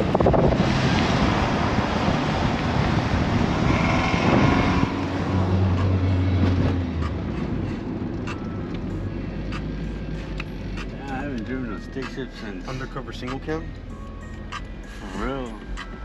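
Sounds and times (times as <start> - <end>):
car engine accelerating hard: 0.0 - 10.4
steady low drone: 0.0 - 16.0
wind and road rush: 0.0 - 16.0.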